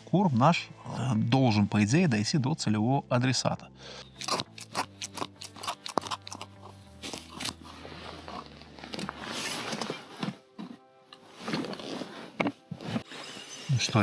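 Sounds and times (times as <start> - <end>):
bait crunching and snipping: 4.1 - 7.8.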